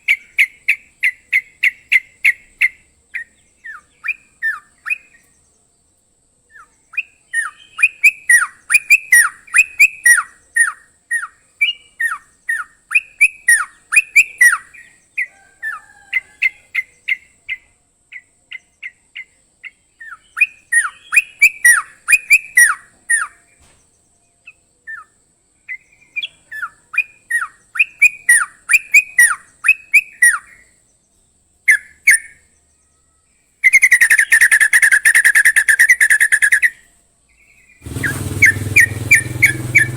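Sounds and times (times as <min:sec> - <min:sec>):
songbird whistled notes: 0:00.0 - 0:05.5, 0:06.5 - 0:30.8, 0:31.7 - 0:39.9
fast bird trill: 0:06.6 - 0:17.6, 0:20.0 - 0:23.5, 0:33.6 - 0:36.8, 0:37.6 - 0:39.9.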